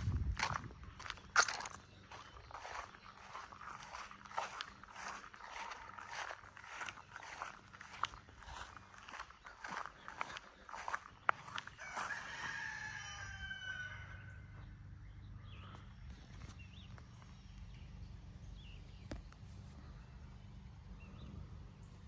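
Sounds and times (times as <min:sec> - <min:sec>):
light footsteps: 0:00.0 - 0:12.9
rooster crowing: 0:11.4 - 0:14.6.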